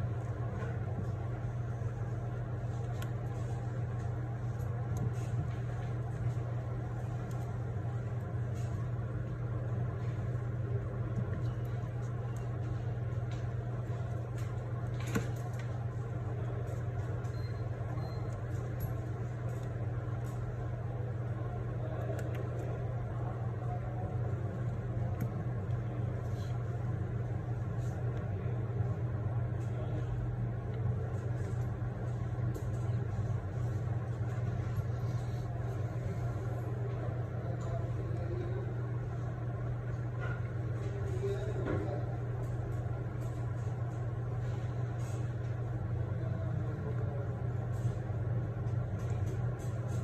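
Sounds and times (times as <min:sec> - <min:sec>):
low machine hum: 0:00.0 - 0:50.0.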